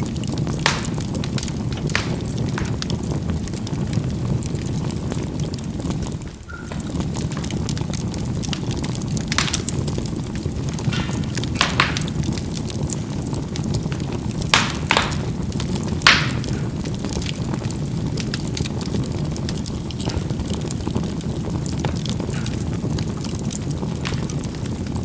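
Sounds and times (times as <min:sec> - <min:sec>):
charcoal popping and crackling: 0:00.0 - 0:25.0
low rumble of fire: 0:00.0 - 0:25.0.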